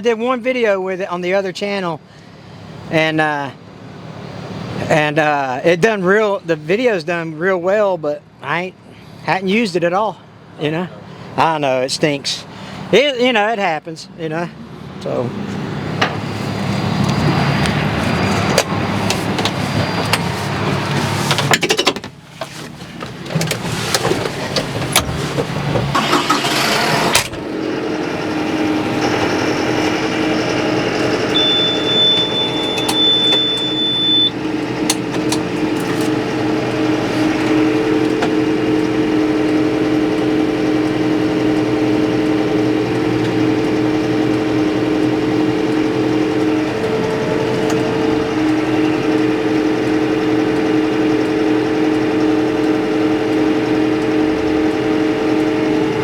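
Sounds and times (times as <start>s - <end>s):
vehicle engine running: 15.0s - 56.0s
thin high beep: 31.1s - 34.4s.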